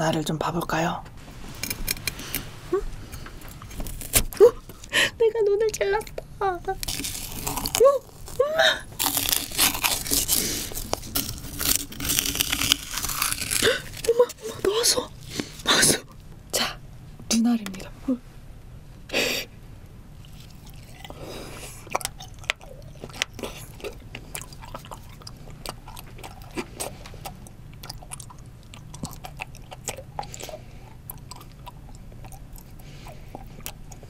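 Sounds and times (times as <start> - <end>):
wet chewing clicks and smacks: 20.2 - 21.2, 21.8 - 34.0.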